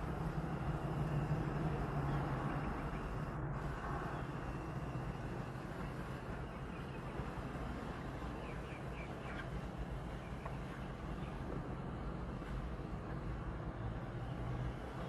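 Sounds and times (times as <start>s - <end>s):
outdoor background hum: 0.0s - 15.0s.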